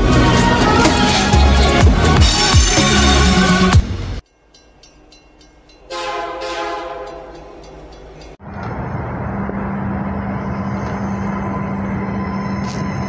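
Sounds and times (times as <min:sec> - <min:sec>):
diesel railcar engine running: 0:00.0 - 0:13.0
train horn chord: 0:05.9 - 0:07.7.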